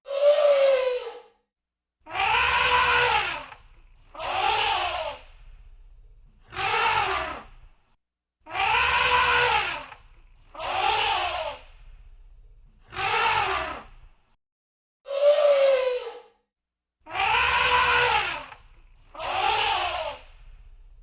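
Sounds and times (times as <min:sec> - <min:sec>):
elephant trumpeting: 0:02.1 - 0:05.2, 0:08.5 - 0:10.0, 0:17.1 - 0:18.6, 0:19.2 - 0:20.2.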